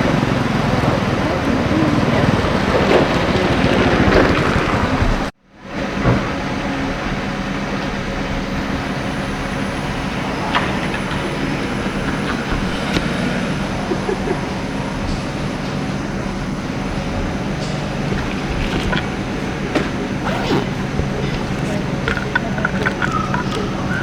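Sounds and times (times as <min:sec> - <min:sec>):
rumbling background noise: 0:00.0 - 0:24.0.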